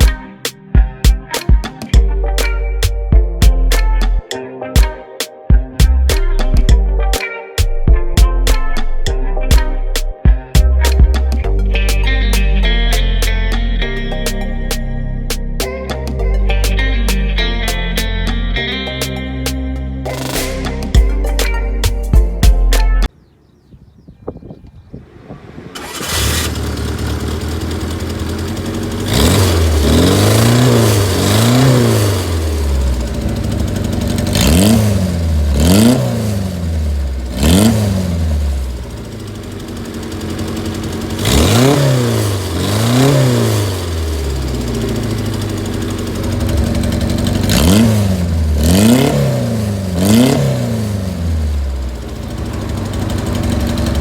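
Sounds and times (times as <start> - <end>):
car engine idling and revving: 16.3 - 22.7, 25.0 - 54.0.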